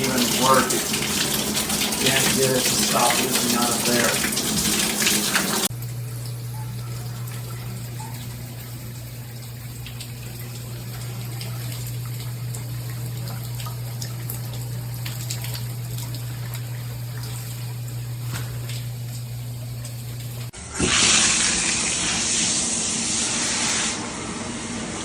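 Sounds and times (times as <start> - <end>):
water trickling and dripping: 0.0 - 20.5.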